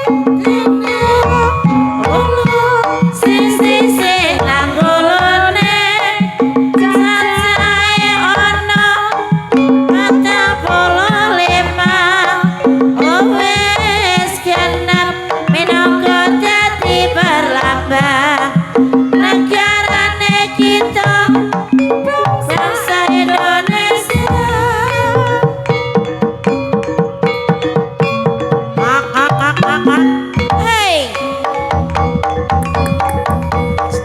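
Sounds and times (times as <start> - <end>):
person singing ornamented melody: 0.0 - 25.9, 28.8 - 31.2
hand drum strokes: 0.0 - 34.0
low held gamelan note: 18.7 - 34.0.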